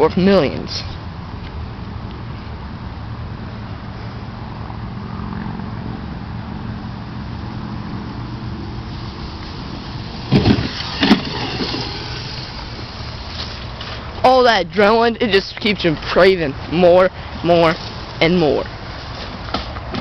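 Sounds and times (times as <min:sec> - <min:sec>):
distant dirt bike engine: 0:03.5 - 0:16.2
loud engine bursts: 0:08.6 - 0:13.3.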